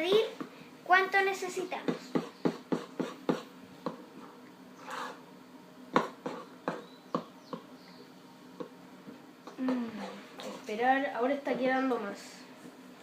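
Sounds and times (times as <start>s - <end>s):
spoon stirring sticky mixture: 2.0s - 5.4s.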